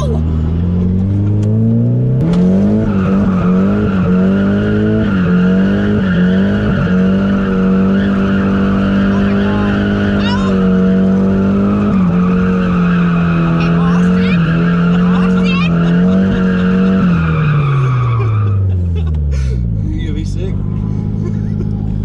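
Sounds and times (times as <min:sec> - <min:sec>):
car engine revving high: 0:00.0 - 0:22.0
tyres squealing: 0:02.9 - 0:19.0.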